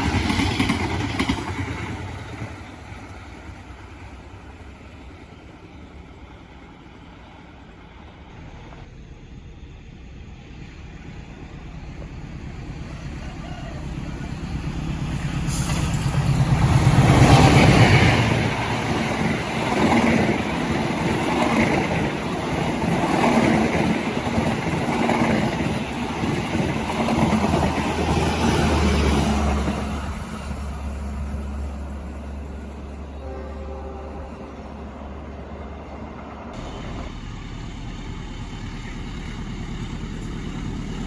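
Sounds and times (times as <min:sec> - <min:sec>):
diesel locomotive engine: 0:00.0 - 0:41.0
train cars rumbling and clattering: 0:00.0 - 0:41.0.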